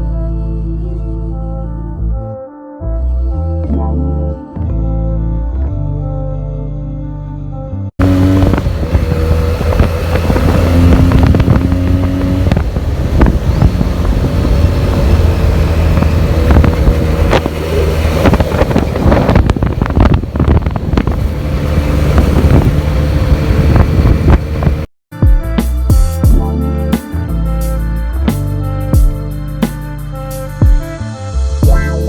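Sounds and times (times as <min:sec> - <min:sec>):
motorcycle exhaust engine note: 0:08.0 - 0:24.9
wind buffeting microphone: 0:08.0 - 0:24.9.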